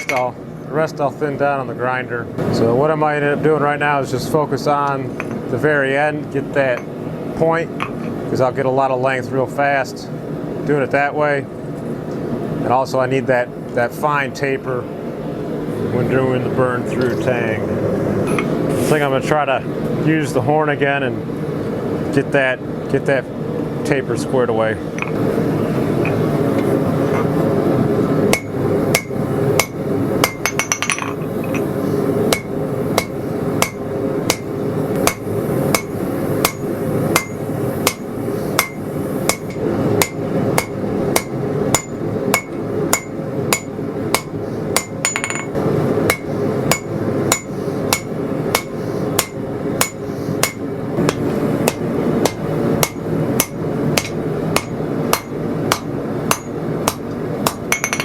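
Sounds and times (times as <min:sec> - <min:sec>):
hammer striking steel on anvil: 0:28.3 - 0:31.7, 0:32.3 - 0:58.0.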